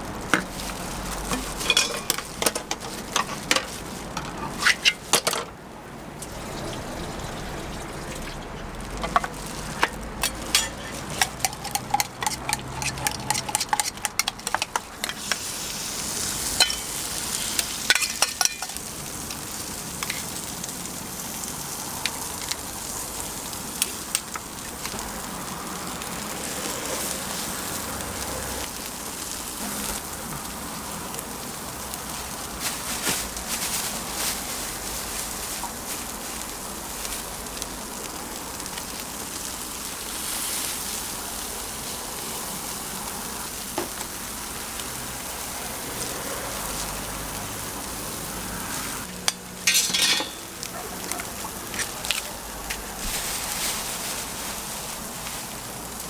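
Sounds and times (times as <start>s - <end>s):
food sizzling on a griddle: 0.0s - 56.0s
metal utensil clicks: 9.8s - 15.5s.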